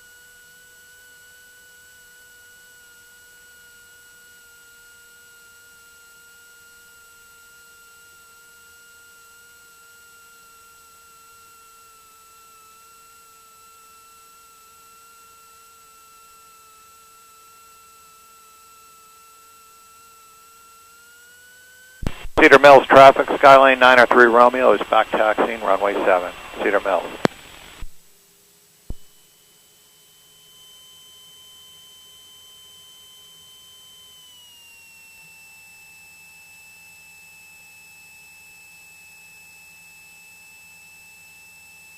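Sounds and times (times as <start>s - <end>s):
faint electrical whine: 0.0s - 36.4s
high-pitched engine whine over intercom: 21.8s - 27.3s.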